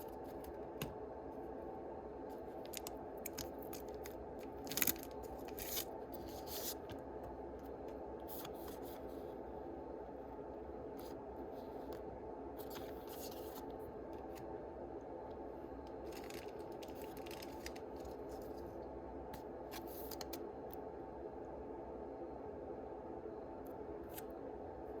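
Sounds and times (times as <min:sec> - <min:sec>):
steady low hum: 0:00.0 - 0:25.0
foil packs crinkling: 0:02.6 - 0:06.8, 0:16.0 - 0:18.7.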